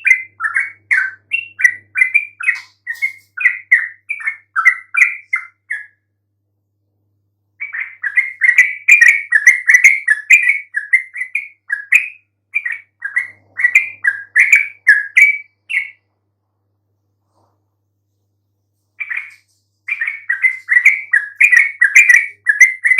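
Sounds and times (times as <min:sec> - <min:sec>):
bird singing bubbly chattering notes: 0:00.0 - 0:05.9, 0:07.6 - 0:16.0, 0:19.0 - 0:22.9.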